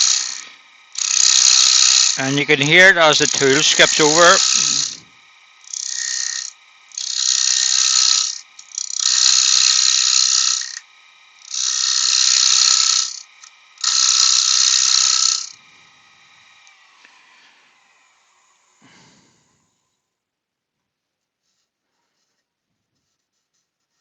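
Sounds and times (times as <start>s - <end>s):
turning tool cutting wood: 0.0s - 18.8s
lathe hum: 0.0s - 20.0s.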